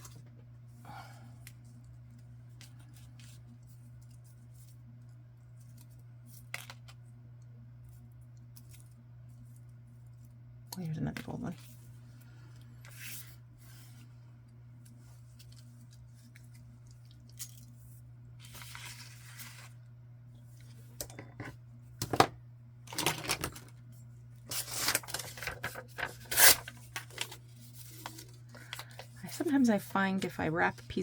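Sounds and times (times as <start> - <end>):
paper rustling and crinkling: 14.8 - 19.9, 24.5 - 31.0.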